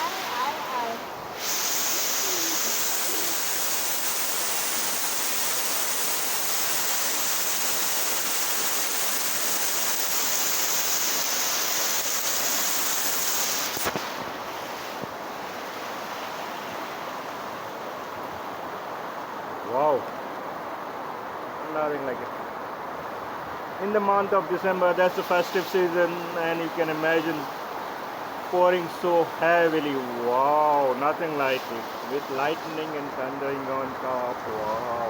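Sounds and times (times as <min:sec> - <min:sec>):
heavy rain pouring: 0:00.0 - 0:14.8.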